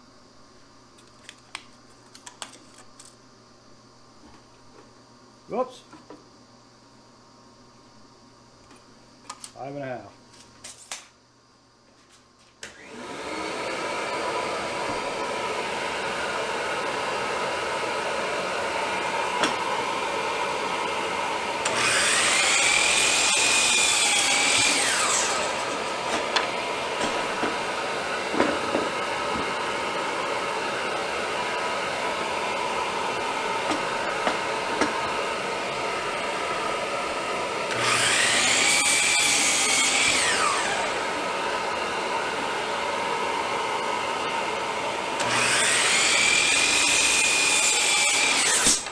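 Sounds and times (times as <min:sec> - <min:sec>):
shop vacuum droning: 0:12.6 - 0:48.9
miter saw cutting wood: 0:12.8 - 0:48.9.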